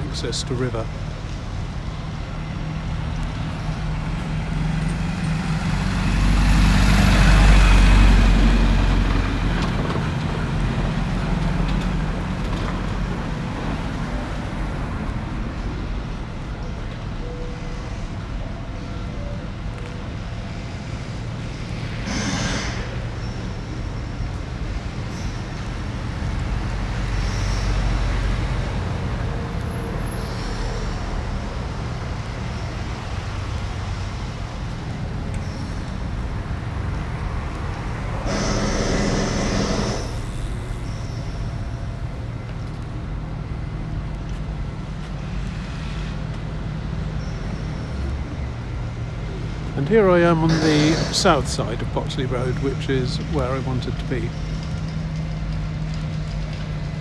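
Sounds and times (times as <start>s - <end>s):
loud vehicles passing close: 0.0s - 17.2s, 17.9s - 57.0s
rumble of passing traffic: 0.0s - 57.0s.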